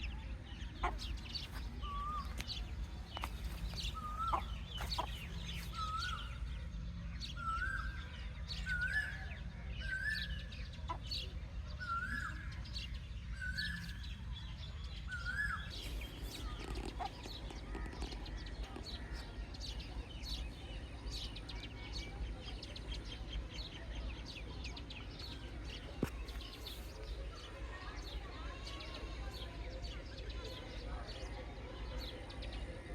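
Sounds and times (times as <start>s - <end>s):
steady low hum: 0.0s - 28.5s
chickens calling: 0.7s - 6.5s
chicks peeping: 0.8s - 6.5s.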